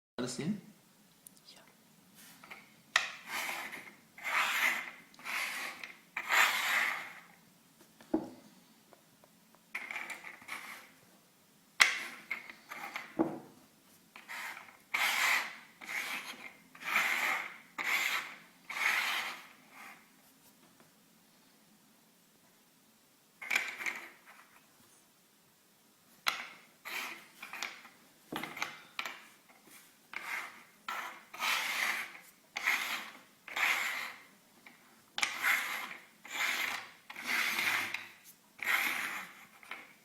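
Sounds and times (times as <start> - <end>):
scraping strokes: 2.2 - 7.3, 9.8 - 11.0, 14.2 - 20.1, 29.2 - 34.3, 35.2 - 40.0.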